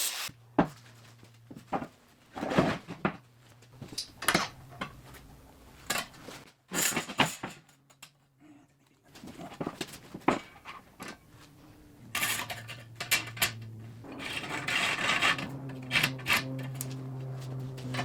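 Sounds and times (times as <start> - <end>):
metal rasping and scraping: 12.1 - 18.0.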